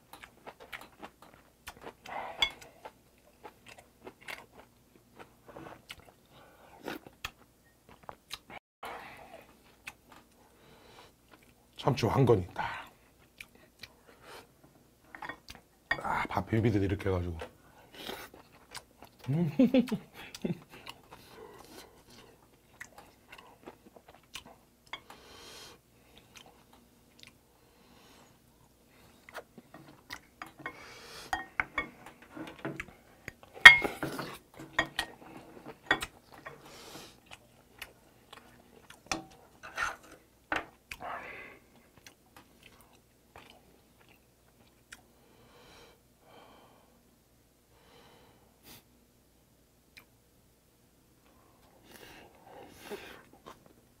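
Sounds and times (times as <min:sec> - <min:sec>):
man chewing food: 0:00.0 - 0:11.8, 0:13.1 - 0:15.9, 0:17.4 - 0:45.7, 0:49.9 - 0:50.2, 0:51.2 - 0:54.0
spoon and chopsticks clicking on bowls: 0:33.6 - 0:33.9.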